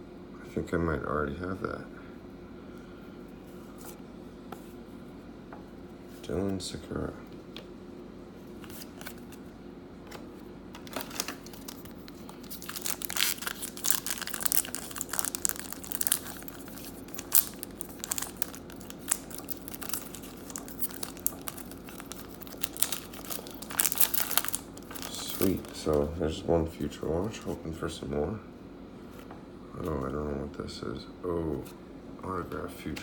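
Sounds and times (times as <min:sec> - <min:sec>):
steady low hum: 0:00.0 - 0:33.0
wrappers crinkling and tearing: 0:10.8 - 0:26.1.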